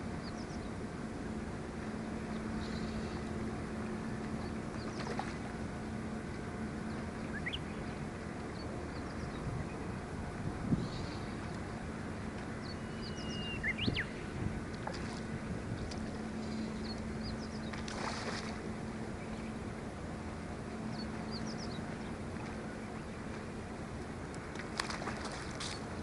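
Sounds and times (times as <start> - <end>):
boat engine drone: 0.0 - 26.0
birds chirping: 6.8 - 14.4, 15.7 - 19.7, 20.6 - 23.6.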